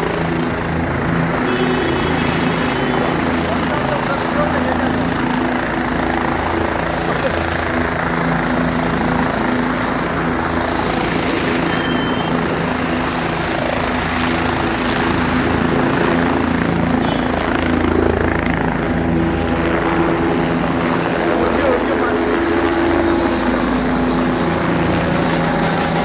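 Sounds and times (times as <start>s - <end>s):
helicopter rotor and engine: 0.0s - 26.0s.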